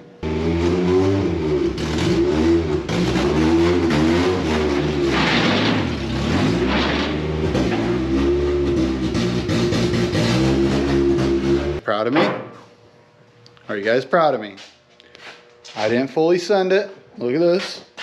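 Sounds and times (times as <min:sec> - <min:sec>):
car engine revving: 0:00.2 - 0:11.8.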